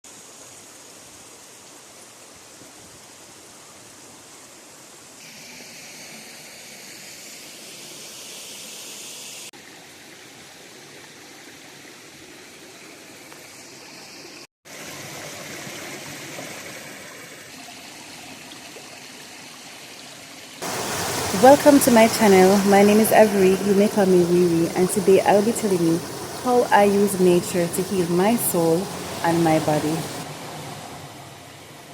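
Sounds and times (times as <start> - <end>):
river flowing over rocks: 20.6 - 30.5.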